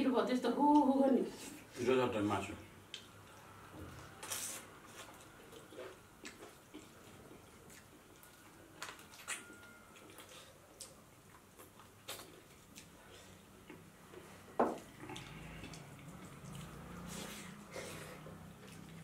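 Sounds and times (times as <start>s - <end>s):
wet chewing and lip-smacking: 4.2s - 19.0s.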